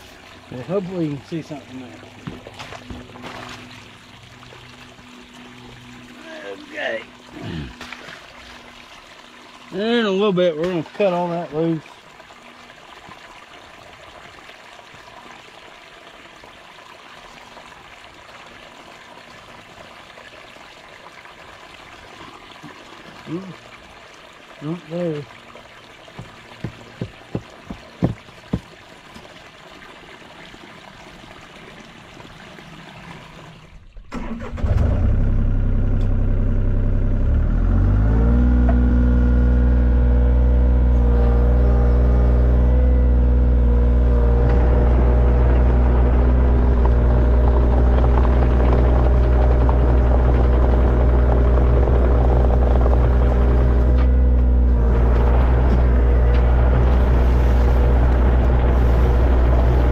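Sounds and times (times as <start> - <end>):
sharp knocks: 26.2 - 28.7
excavator diesel engine: 34.6 - 59.9.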